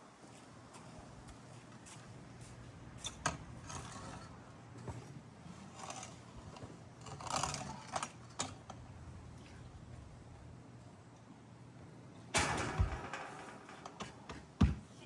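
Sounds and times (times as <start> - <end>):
steady low hum: 8.3 - 15.0.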